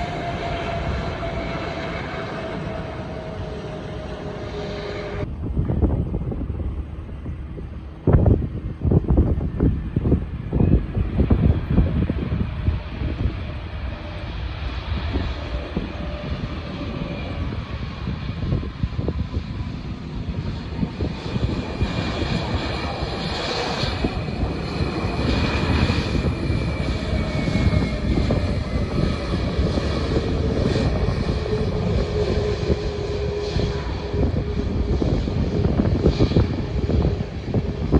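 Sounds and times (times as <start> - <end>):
airliner engines rumbling and whining: 0.0 - 37.9
wind buffeting microphone: 0.0 - 37.9.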